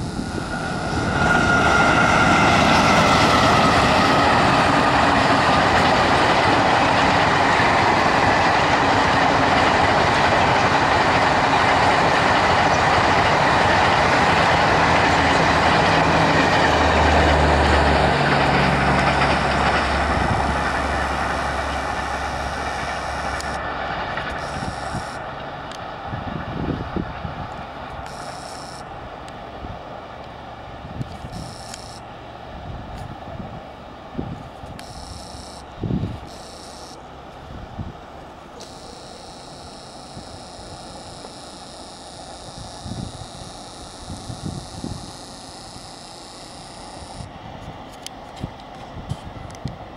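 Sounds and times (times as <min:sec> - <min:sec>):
falling whine: 0:00.0 - 0:06.5, 0:13.8 - 0:25.4, 0:31.3 - 0:32.1, 0:38.5 - 0:47.3
train wheels rushing and rattling: 0:00.2 - 0:28.1.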